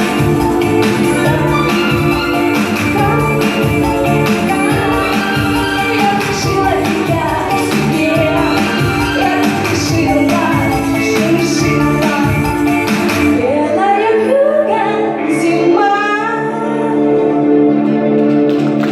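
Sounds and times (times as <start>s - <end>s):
drum beat: 0.0s - 12.8s
woman singing: 0.0s - 17.4s
pop backing track: 0.0s - 18.9s.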